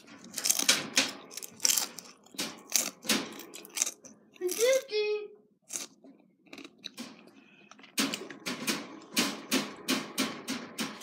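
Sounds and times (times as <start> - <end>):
crunchy food being chewed: 0.0 - 4.6, 5.7 - 7.0.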